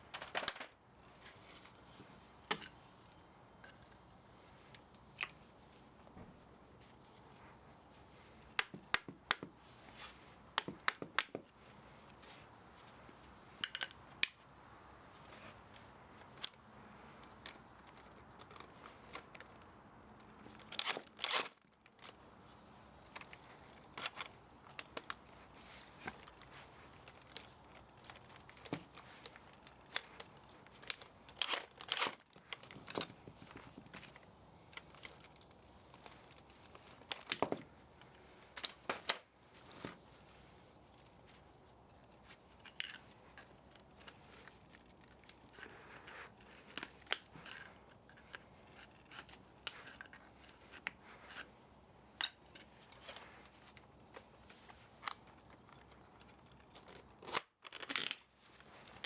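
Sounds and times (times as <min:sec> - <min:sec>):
metal tearing and scraping: 0:20.5 - 0:22.1, 0:27.0 - 0:33.0, 0:34.8 - 0:37.4, 0:55.7 - 0:58.2.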